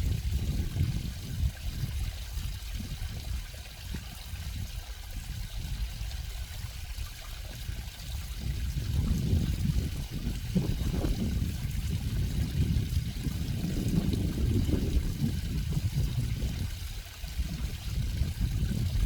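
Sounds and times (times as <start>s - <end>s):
water flowing and trickling: 0.0s - 19.0s.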